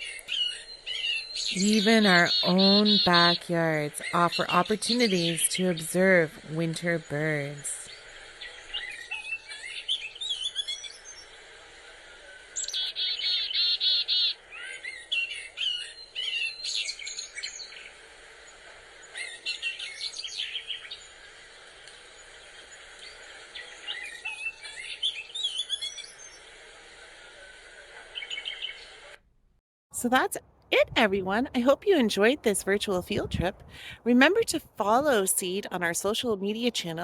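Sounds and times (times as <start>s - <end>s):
bird trill: 0.0s - 11.3s, 12.6s - 18.0s, 19.0s - 26.4s
small birds chirping: 0.0s - 11.4s, 12.5s - 26.5s, 28.1s - 28.9s.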